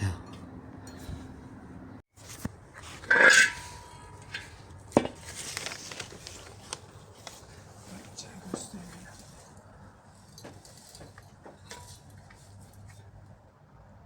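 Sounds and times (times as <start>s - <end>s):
metal clattering and scraping: 2.2s - 6.6s.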